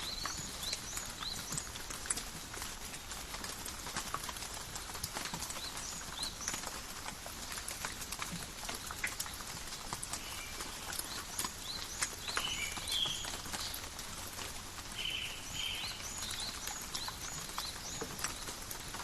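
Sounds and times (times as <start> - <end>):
rain dripping in forest: 0.0 - 19.0.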